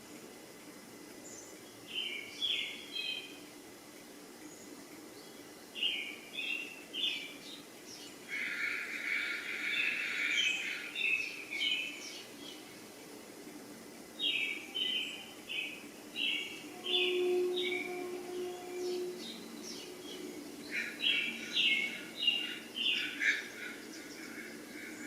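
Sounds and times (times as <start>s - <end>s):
birds chirping: 4.4s - 12.8s, 14.1s - 25.0s.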